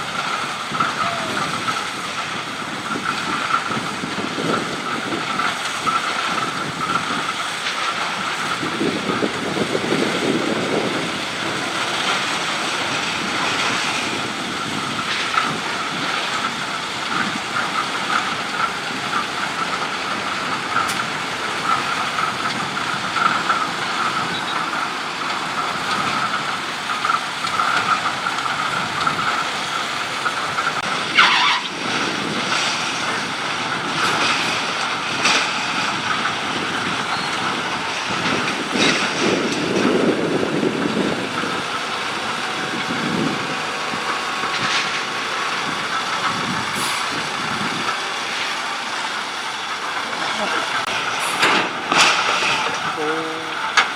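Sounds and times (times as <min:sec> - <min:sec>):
constant whine: 0:00.0 - 0:53.9
truck engine rumble: 0:00.0 - 0:53.9.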